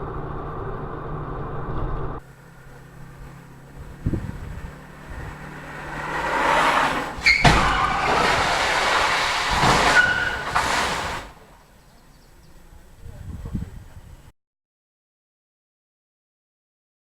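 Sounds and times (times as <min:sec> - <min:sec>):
road vehicle noise: 0:00.0 - 0:14.3
car collision bang: 0:03.2 - 0:11.8
thump: 0:06.2 - 0:11.4.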